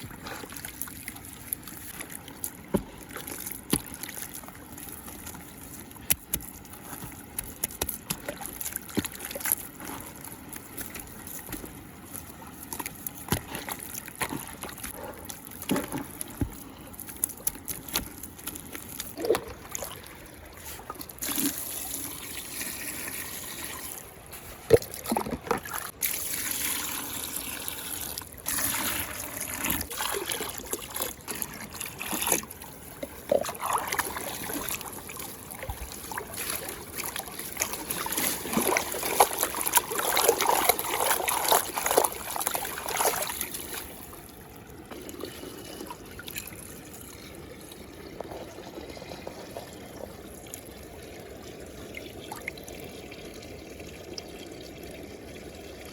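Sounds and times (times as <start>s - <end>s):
muddy water trickling and splashing: 0.0s - 55.9s.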